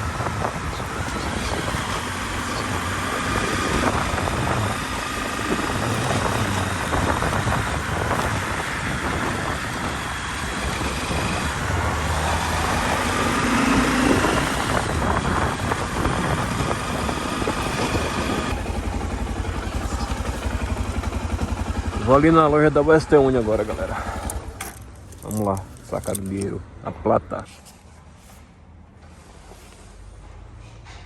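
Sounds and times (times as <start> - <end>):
wind noise on microphone: 0.0 - 18.7
motorcycle engine: 0.0 - 26.4.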